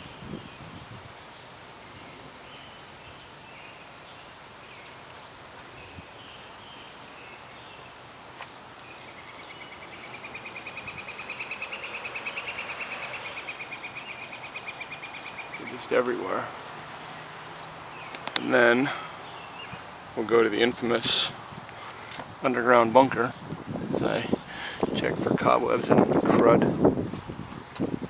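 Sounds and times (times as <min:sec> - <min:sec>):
bird chirps: 0:01.8 - 0:20.7
sharp click: 0:18.1 - 0:18.5.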